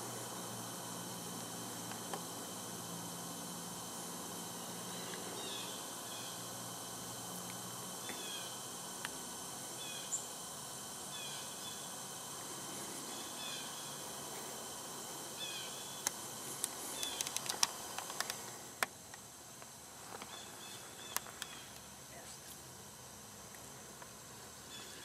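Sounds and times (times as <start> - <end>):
woodland background hiss: 0.0 - 25.0
small bird chirping: 9.8 - 10.4, 16.9 - 17.5, 20.3 - 21.8
sharp clicks and snaps: 16.0 - 20.3.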